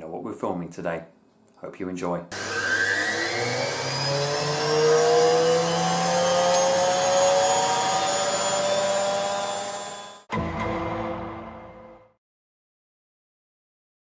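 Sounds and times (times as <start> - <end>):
washing machine motor whining: 2.3 - 10.3.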